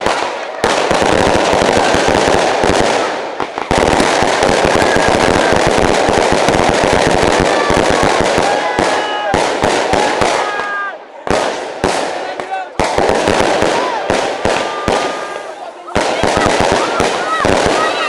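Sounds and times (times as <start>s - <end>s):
bonfire crackling and popping: 0.0s - 18.0s.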